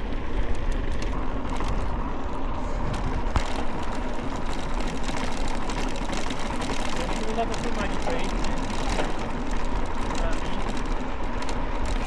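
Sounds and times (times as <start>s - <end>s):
road and wind noise: 0.0s - 12.0s
vehicle engine running: 0.0s - 12.0s.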